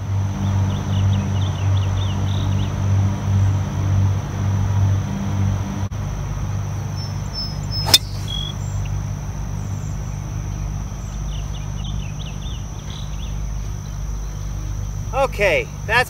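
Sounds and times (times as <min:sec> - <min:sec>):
golf club striking ball: 0:07.8 - 0:08.5.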